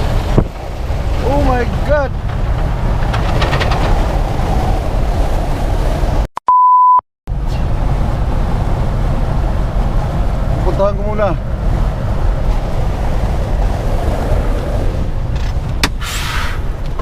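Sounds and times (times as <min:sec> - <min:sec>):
road and wind noise in truck cab: 0:00.0 - 0:17.0
censor bleep: 0:06.4 - 0:07.0.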